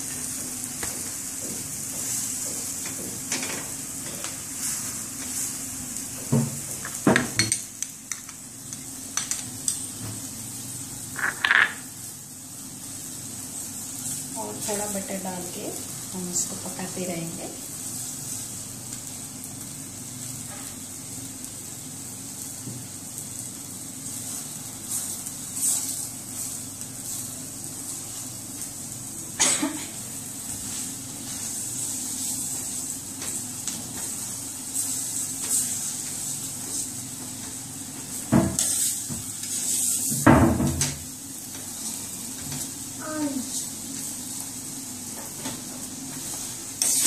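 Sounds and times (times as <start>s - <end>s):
butter sizzling on a griddle: 0.0s - 47.0s
metal spatula scraping a pan: 46.8s - 47.0s.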